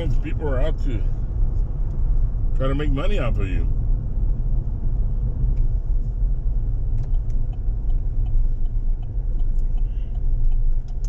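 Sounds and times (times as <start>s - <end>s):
truck engine and tyres rumbling: 0.0s - 11.0s.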